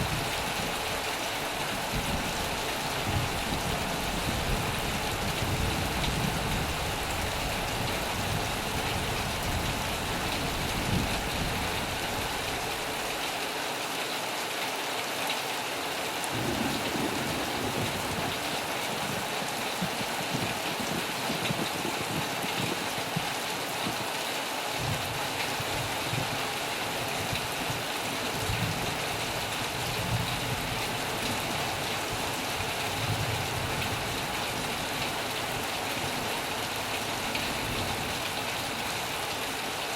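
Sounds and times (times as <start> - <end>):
heavy rain falling: 0.0 - 39.9
low thunder rumbling: 1.8 - 12.0, 16.3 - 22.9.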